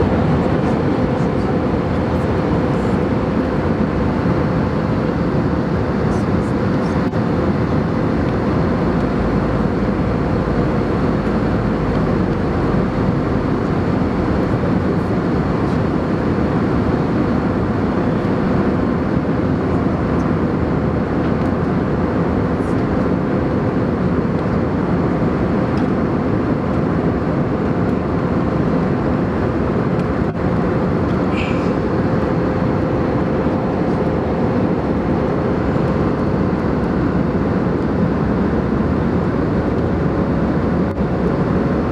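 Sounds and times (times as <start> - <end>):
engine drone: 0.0 - 19.8, 29.5 - 41.9
faint constant hum: 0.0 - 21.1, 29.0 - 41.9
airflow rushing in aircraft cabin: 0.0 - 41.9.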